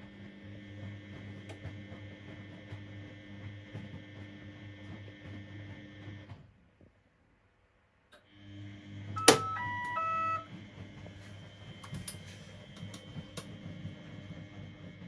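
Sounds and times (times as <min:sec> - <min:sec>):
control click: 0:09.2 - 0:10.4
electronic beeps: 0:09.2 - 0:10.5.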